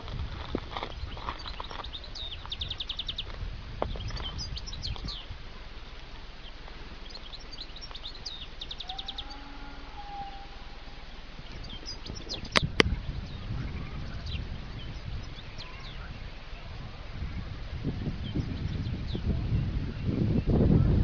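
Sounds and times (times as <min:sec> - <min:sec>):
low rumble: 0:00.0 - 0:21.0
small birds chirping: 0:00.0 - 0:21.0
fast bird trill: 0:06.4 - 0:16.6.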